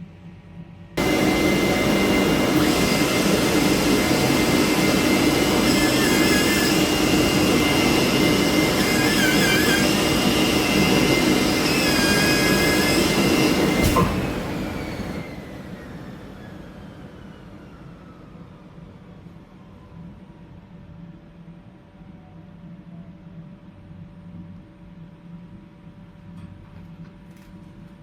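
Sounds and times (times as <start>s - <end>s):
fabric cutting machine rushing: 1.0s - 17.9s.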